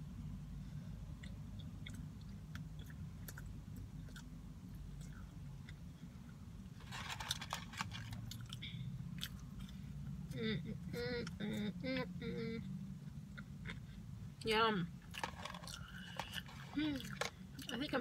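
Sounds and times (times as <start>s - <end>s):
steady low hum: 0.0s - 18.0s
chewing and mouth sounds: 1.1s - 6.4s, 8.0s - 10.4s
crunching: 6.8s - 8.6s.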